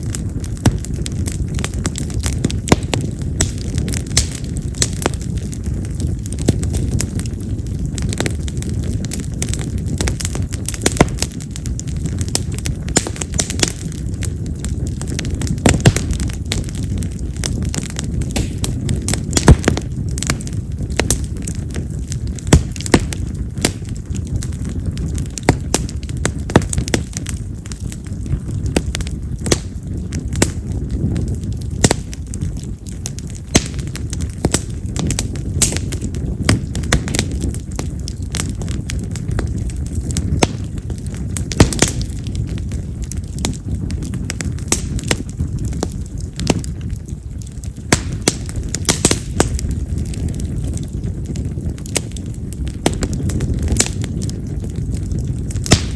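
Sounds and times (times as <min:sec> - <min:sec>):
fire flames rushing: 0:00.0 - 0:55.9
firewood crackling and popping: 0:00.0 - 0:55.9
loud wood snaps: 0:55.6 - 0:55.9.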